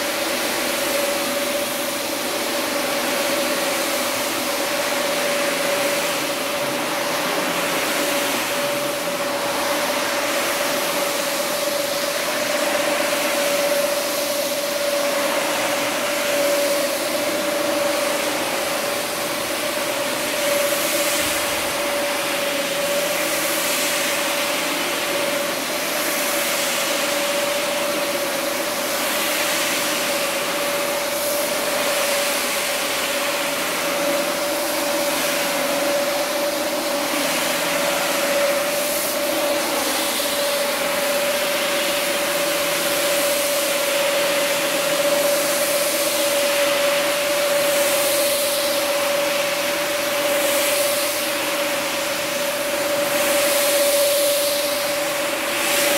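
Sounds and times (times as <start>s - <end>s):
carpet cleaner motor whine: 0.0s - 55.9s
cleaning tool hissing: 0.0s - 55.9s.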